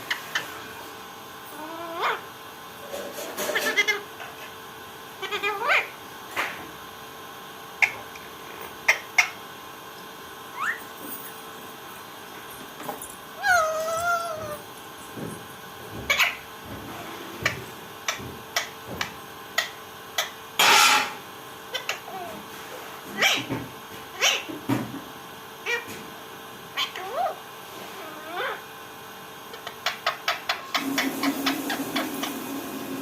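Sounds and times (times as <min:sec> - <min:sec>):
parrot meow-like call: 0:01.6 - 0:02.2.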